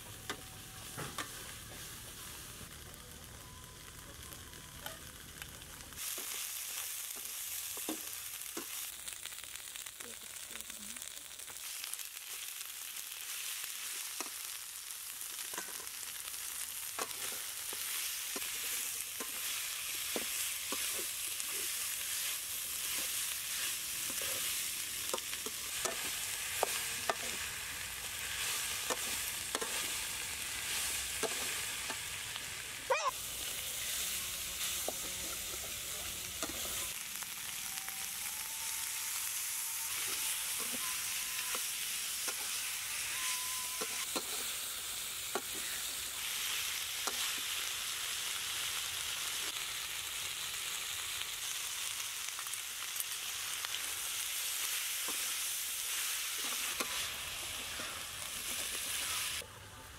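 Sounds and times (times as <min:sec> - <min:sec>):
food sizzling in a wok: 0:00.0 - 0:59.9
spatula scraping a wok: 0:16.8 - 0:32.2, 0:53.7 - 0:59.4.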